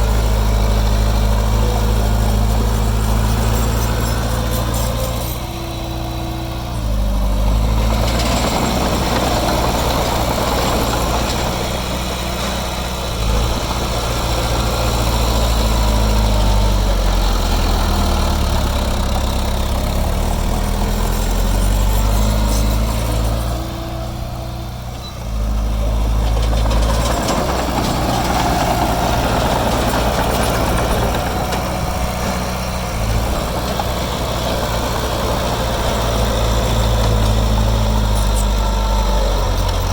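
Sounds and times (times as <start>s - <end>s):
diesel engine of heavy machinery: 0.0s - 39.9s.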